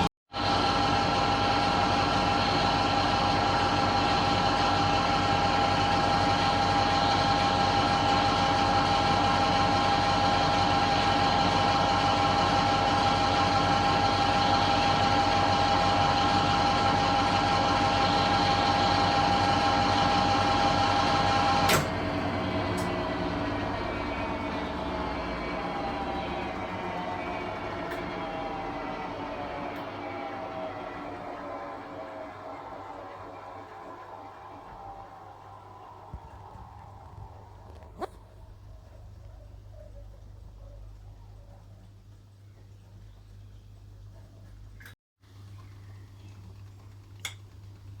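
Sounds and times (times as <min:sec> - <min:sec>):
washing machine motor whine: 0:00.0 - 0:44.8
washing machine drum rumble: 0:14.2 - 0:37.7.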